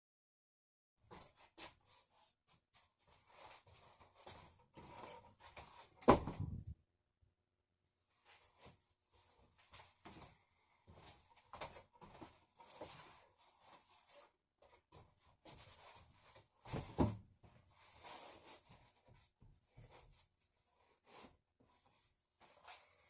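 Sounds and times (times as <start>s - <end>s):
thump: 6.0s - 6.7s.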